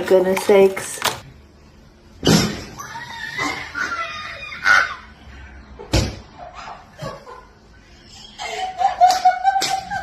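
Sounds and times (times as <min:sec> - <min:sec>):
high wavering animal cries: 0:02.8 - 0:05.2.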